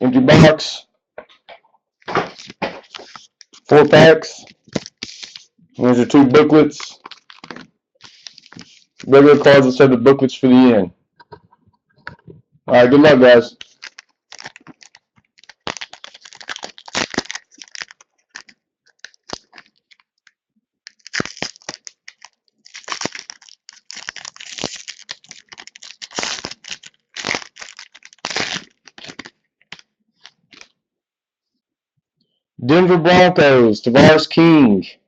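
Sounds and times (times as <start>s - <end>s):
cards being handled: 2.0s - 3.8s, 4.4s - 9.2s, 13.5s - 30.7s
foil wrapper tearing and crinkling: 2.2s - 3.7s, 4.4s - 5.5s, 6.8s - 9.1s, 13.5s - 30.7s.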